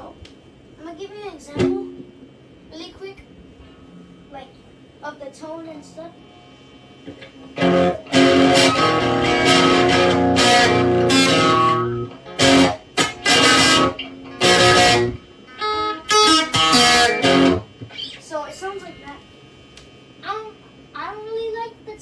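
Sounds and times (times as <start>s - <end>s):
distorted electric guitar chords: 7.1s - 18.2s.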